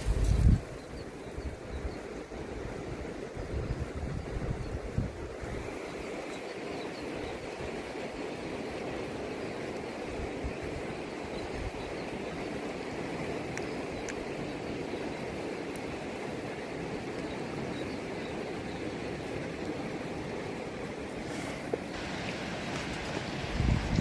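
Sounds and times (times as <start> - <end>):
river water rushing: 5.3 - 24.0.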